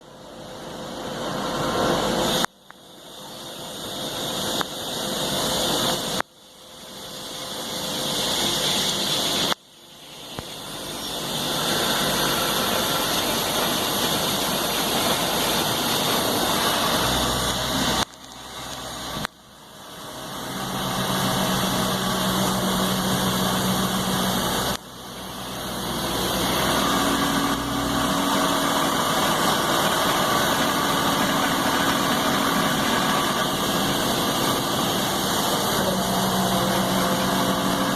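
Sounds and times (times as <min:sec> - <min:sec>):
lathe machine hum and hiss: 0:00.0 - 0:37.9
higher steady tone: 0:16.2 - 0:37.9.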